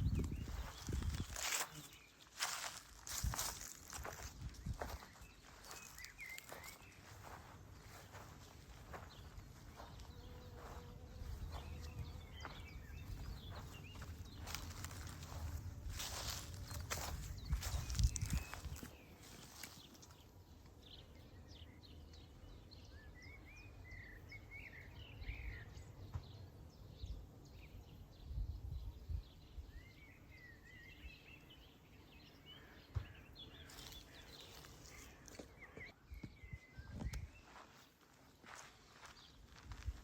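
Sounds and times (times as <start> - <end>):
bird chirps: 0.0 - 20.1.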